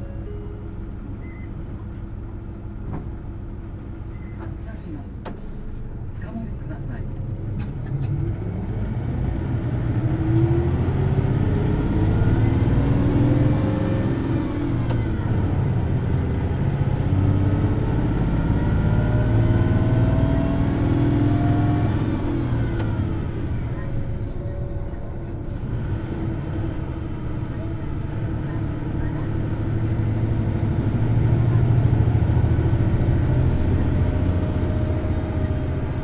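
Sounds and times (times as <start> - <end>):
bus diesel engine revving: 7.3 - 36.0.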